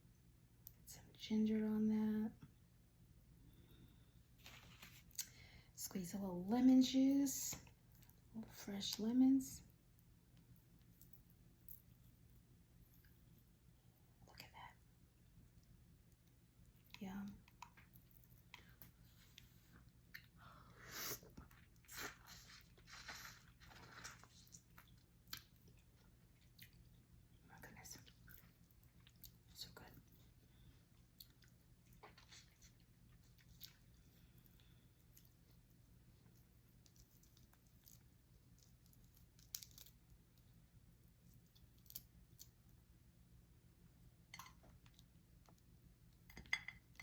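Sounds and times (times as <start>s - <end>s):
person chewing crunchy food: 16.6s - 27.2s, 30.6s - 40.5s.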